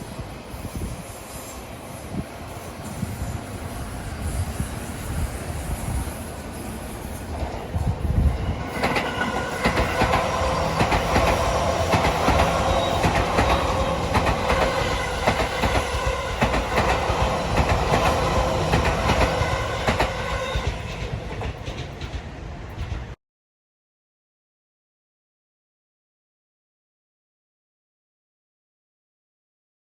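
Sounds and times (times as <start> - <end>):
train rumble: 0.0 - 23.2
train motor whine: 0.2 - 22.9
train wheels clicking over rail joints: 0.5 - 23.2.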